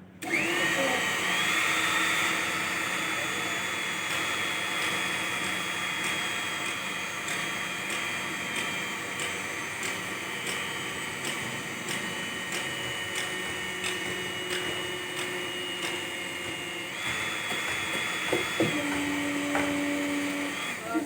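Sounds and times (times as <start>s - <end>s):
machine whine: 0.2s - 21.0s
knocks: 12.5s - 20.0s.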